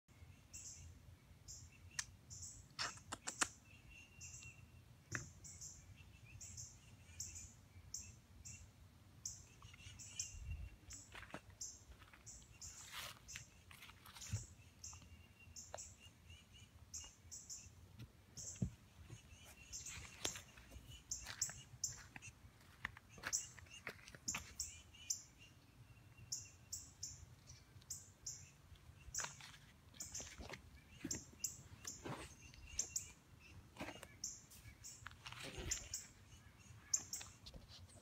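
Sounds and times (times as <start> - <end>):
small birds chirping: 0.1 - 38.0
sharp clicks and taps: 2.8 - 3.6.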